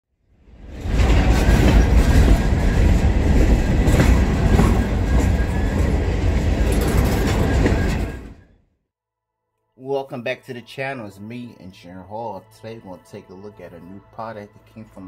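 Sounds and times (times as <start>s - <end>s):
train wheels on rails: 0.5s - 8.5s.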